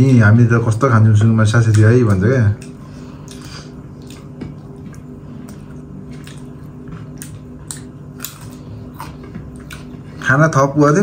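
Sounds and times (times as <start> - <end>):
steady low hum: 0.0 - 11.0
wet chewing smacks: 1.7 - 10.2.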